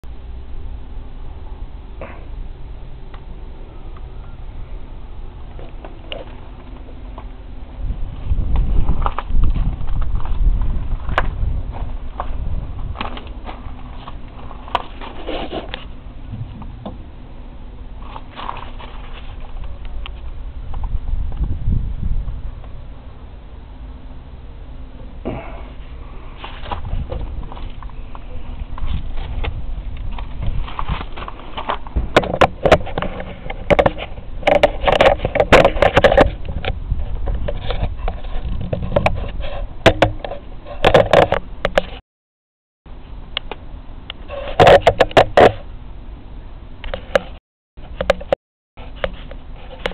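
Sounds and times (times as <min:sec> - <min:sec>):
sharp knocks and clatters: 0:30.2 - 0:42.0, 0:46.9 - 0:49.9.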